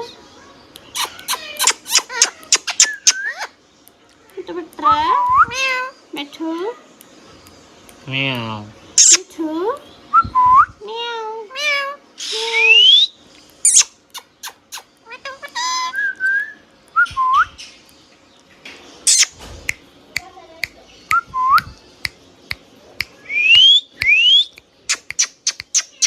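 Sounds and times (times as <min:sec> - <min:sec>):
parakeet squawk: 0:00.9 - 0:03.5, 0:09.0 - 0:09.2, 0:13.7 - 0:15.9, 0:19.1 - 0:19.4, 0:24.9 - 0:26.0
parakeet whistling and chirping: 0:01.0 - 0:03.5, 0:09.0 - 0:09.2, 0:12.5 - 0:14.9, 0:19.1 - 0:19.4, 0:23.4 - 0:26.0.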